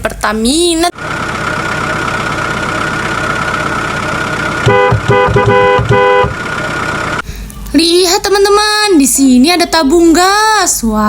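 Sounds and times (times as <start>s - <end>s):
short horn toots: 4.6s - 6.4s.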